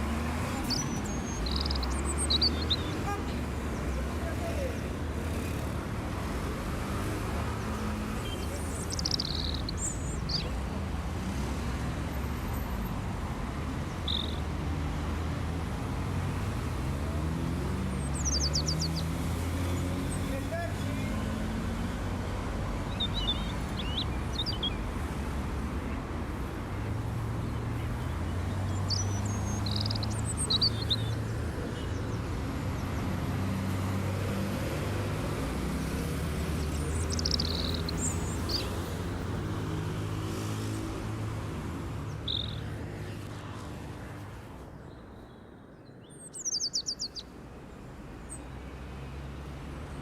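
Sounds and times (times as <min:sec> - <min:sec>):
birds chirping: 0:00.0 - 0:50.0.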